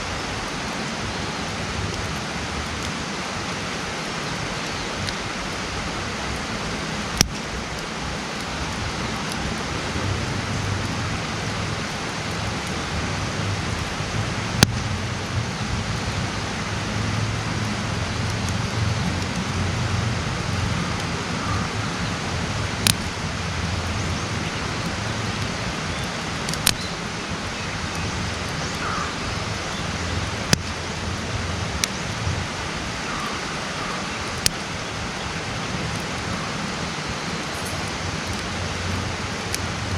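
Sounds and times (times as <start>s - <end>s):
campfire hissing: 0.0s - 39.9s
wood popping: 22.8s - 26.9s, 34.2s - 34.7s.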